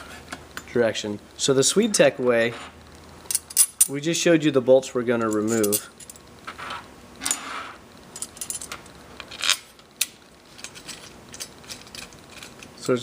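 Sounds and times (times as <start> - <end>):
metal hardware clinking: 3.3 - 4.0, 5.3 - 6.2, 8.2 - 8.8
short metal scrapes: 6.5 - 7.8.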